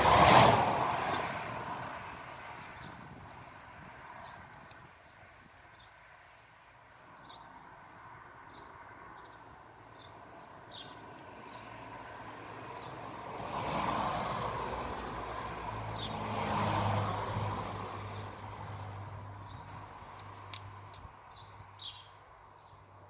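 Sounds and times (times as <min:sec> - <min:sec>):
motor vehicle passing: 0:00.0 - 0:02.1, 0:11.4 - 0:20.9.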